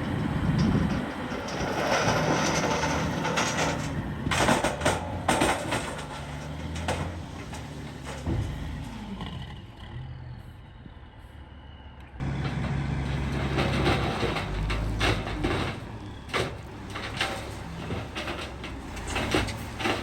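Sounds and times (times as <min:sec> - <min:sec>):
skid steer engine running: 0:00.0 - 0:20.0.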